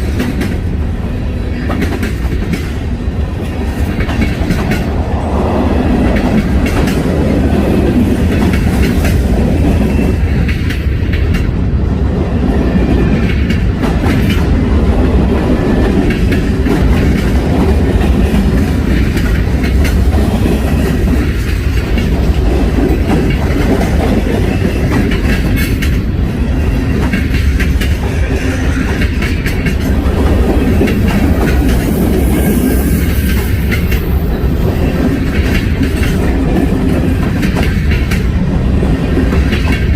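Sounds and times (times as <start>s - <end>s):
freight train wheels clickety-clack: 0.0s - 39.9s.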